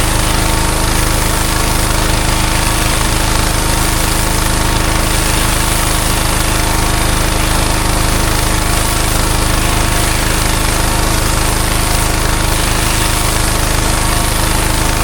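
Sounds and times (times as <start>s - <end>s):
pressure washer engine running: 0.0s - 15.0s
water jet hissing: 0.0s - 15.0s.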